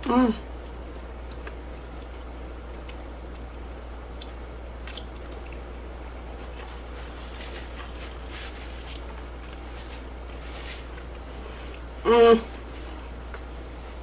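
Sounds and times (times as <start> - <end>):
steady low hum: 0.0 - 14.0
chewing mouth sounds: 4.1 - 5.8.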